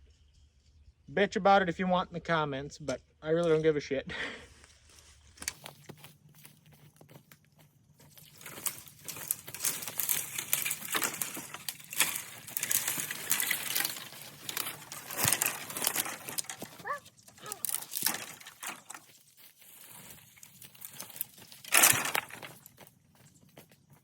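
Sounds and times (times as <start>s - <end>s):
dry leaves rustling and crackling: 8.0s - 24.0s.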